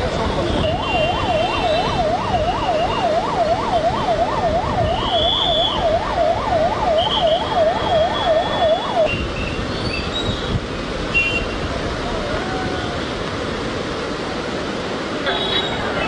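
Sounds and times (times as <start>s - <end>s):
steady rushing noise: 0.0s - 16.0s
electronic siren wailing: 0.6s - 9.1s.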